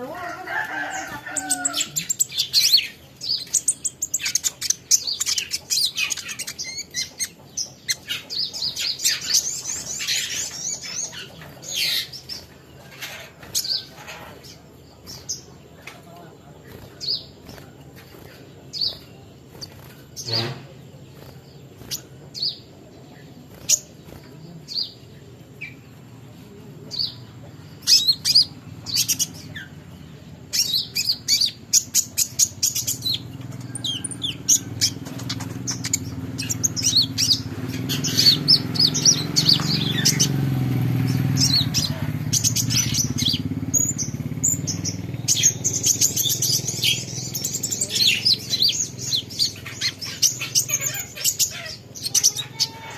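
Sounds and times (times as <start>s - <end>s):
low engine rumble: 0.0s - 52.9s
small songbird chirping: 0.0s - 52.9s.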